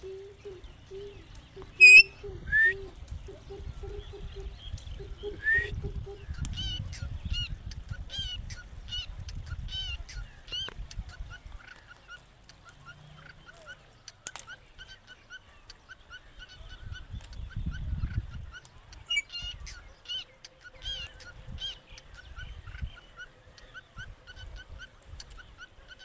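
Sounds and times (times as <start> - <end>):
bird calling sharp notes: 0.0 - 2.8.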